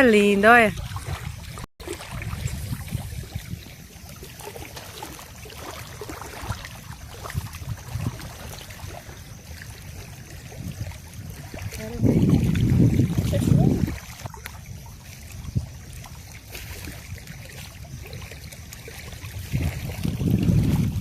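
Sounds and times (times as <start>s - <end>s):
water running: 0.0s - 16.1s
wind rumbling on microphone: 0.0s - 21.0s.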